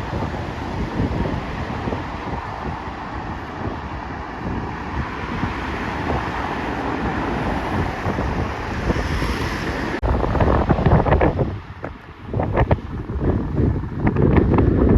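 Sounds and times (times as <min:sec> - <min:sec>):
jet airliner rushing: 0:00.0 - 0:11.7
high engine whine: 0:00.0 - 0:12.4
wind buffeting microphone: 0:00.0 - 0:14.9.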